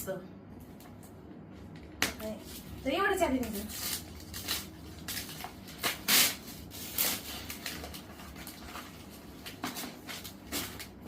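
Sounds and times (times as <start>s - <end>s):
wrapping paper tearing and rustling: 2.3s - 11.0s.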